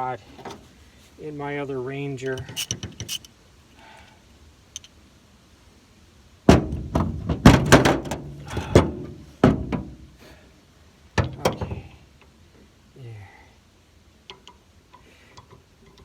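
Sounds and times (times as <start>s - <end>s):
sharp thuds and knocks: 6.5s - 10.0s.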